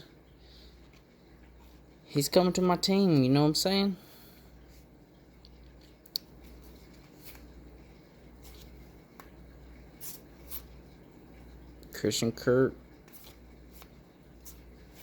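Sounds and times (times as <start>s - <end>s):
low steady hum: 0.0s - 15.0s
cards rustling and sliding: 6.4s - 7.6s, 8.3s - 9.4s, 13.0s - 15.0s.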